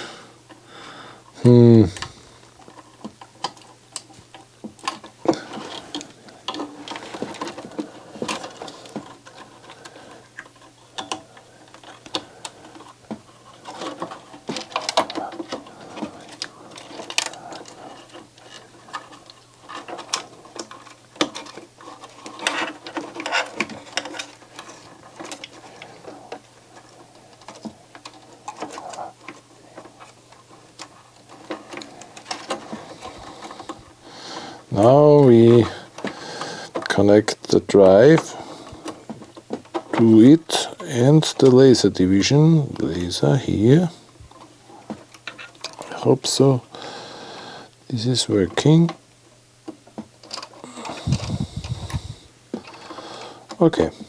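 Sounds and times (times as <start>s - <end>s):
small plastic and metal parts clicking: 1.9s - 33.7s.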